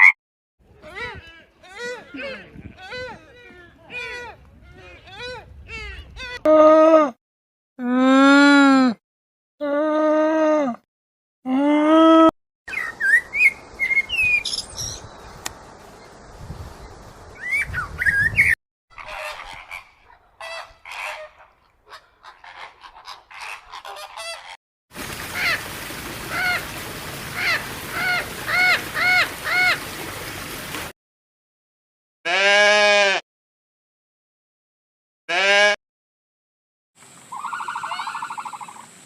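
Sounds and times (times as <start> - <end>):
birds chirping: 12.7 - 18.6, 37.3 - 38.9
honking animal calls: 37.3 - 38.8
loud animal call: 37.3 - 38.8.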